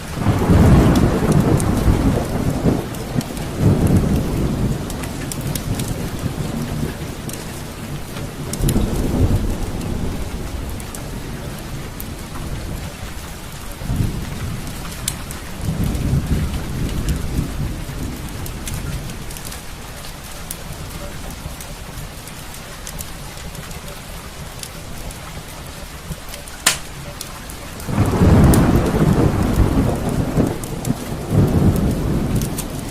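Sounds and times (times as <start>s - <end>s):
thunder rolling: 0.0s - 19.5s, 27.8s - 32.9s
steady rain: 0.0s - 32.9s
sharp crackles: 18.2s - 32.9s.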